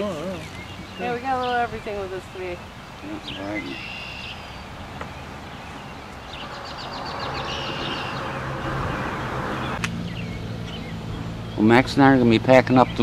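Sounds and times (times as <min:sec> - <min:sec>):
small bird singing: 0:00.0 - 0:13.0
low motor hum: 0:04.5 - 0:11.6
rushing noise: 0:04.6 - 0:10.2.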